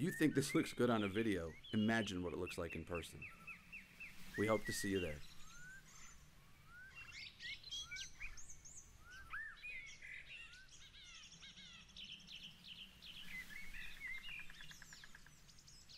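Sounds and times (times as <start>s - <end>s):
bird trill: 0.0s - 15.9s
songbirds singing: 0.0s - 15.9s.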